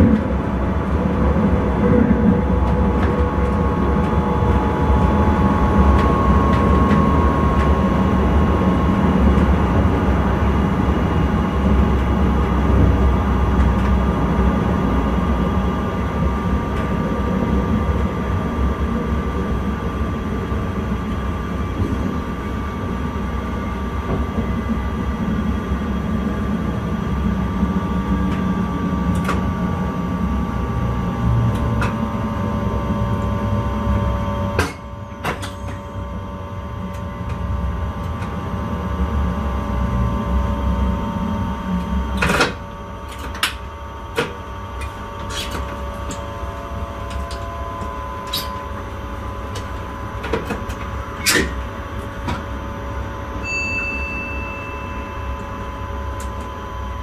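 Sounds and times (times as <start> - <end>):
faint steady whine: 0.0 - 57.0
train running rumble: 0.0 - 57.0.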